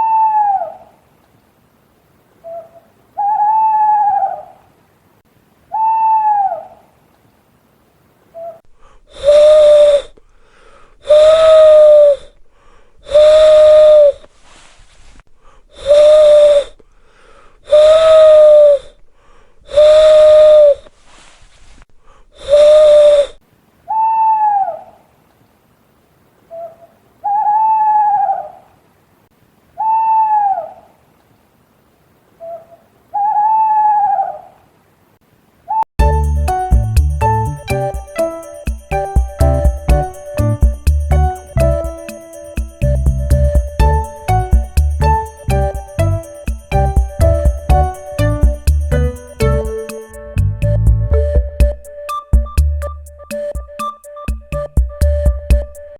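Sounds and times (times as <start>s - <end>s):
owl hooting: 2.4s - 4.6s, 5.7s - 6.8s.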